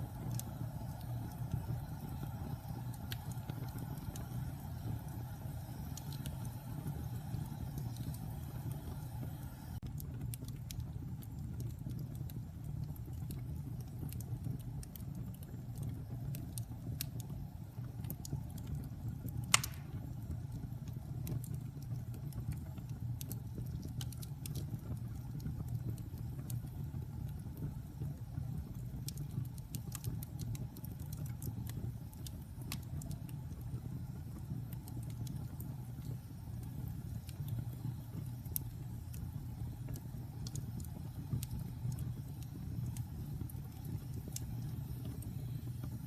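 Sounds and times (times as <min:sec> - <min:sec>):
wood fire roaring and crackling: 0:00.0 - 0:46.0
loud fire pop: 0:19.5 - 0:20.1.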